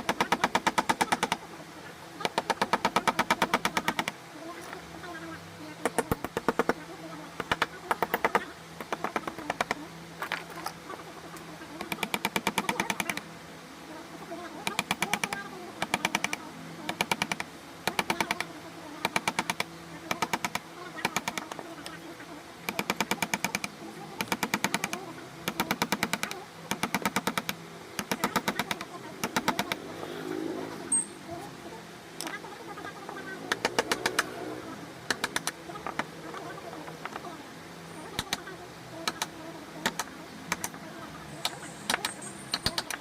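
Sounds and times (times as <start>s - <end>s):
mallet tapping carving chisel: 2.2s - 4.2s.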